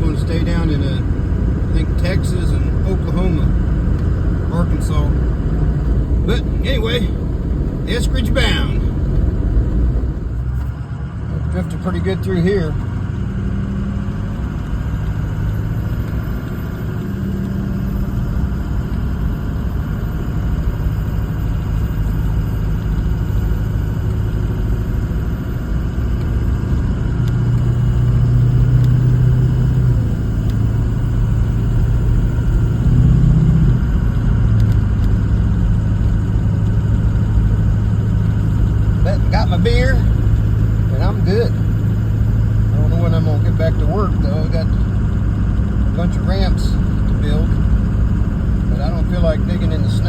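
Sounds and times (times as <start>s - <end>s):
road noise: 0.0s - 50.0s
truck engine humming: 0.0s - 50.0s.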